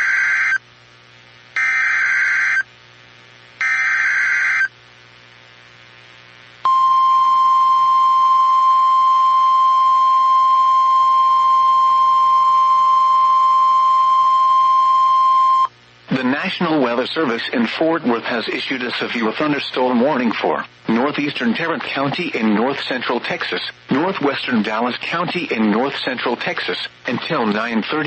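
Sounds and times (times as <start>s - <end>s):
steady warning alarm tone: 1.6s - 2.6s, 3.6s - 4.7s, 6.7s - 15.7s.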